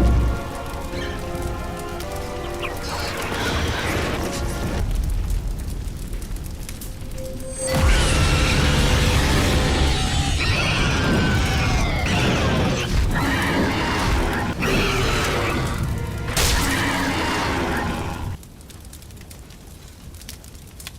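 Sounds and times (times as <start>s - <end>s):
dramatic music: 0.0s - 18.4s
animal shrieks: 2.5s - 4.7s, 7.7s - 15.8s, 16.4s - 18.4s
crashing effects: 2.6s - 18.4s.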